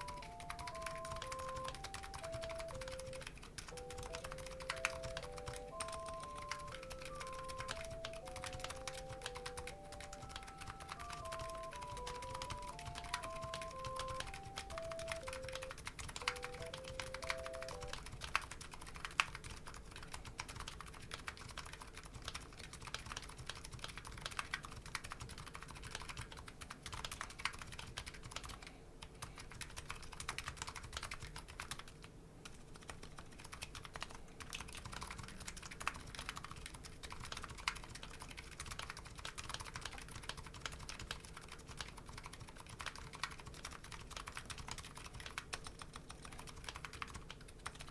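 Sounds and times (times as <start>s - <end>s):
melody of plain tones: 0.0s - 18.2s
keyboard typing clacks: 0.0s - 47.9s.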